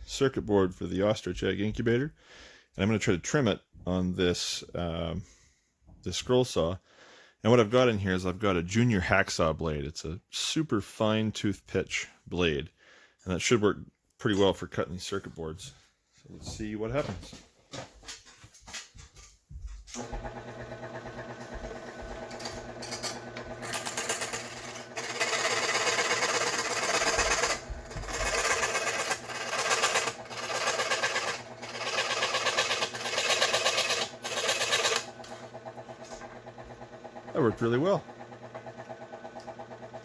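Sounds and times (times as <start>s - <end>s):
scroll saw running: 20.0s - 40.0s
saw cutting circuit board: 20.8s - 39.9s.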